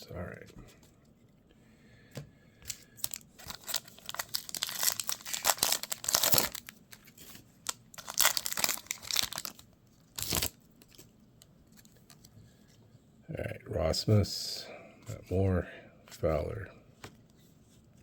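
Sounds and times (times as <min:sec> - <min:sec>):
wrapper tearing and crinkling: 0:03.0 - 0:11.1.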